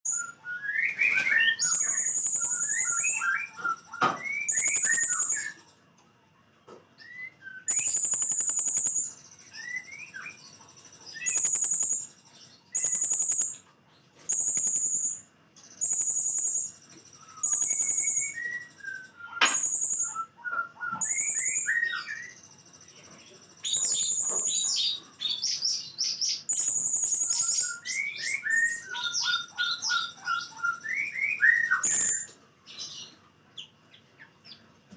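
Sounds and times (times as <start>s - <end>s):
parrot shrill song notes: 23.7s - 32.3s.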